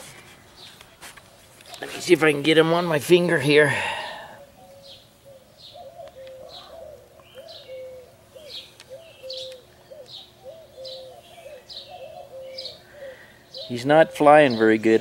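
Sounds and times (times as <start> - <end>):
dove cooing: 3.8 - 15.0
small bird chirping: 4.4 - 14.8.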